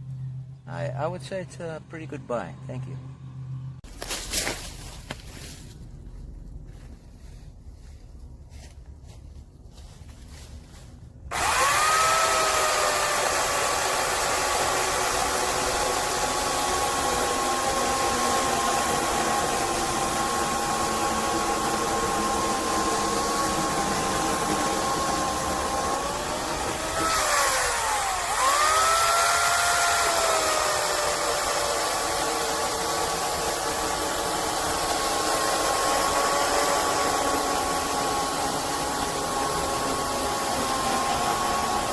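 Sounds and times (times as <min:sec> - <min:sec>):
electric chainsaw motor whining: 0:11.3 - 0:41.9.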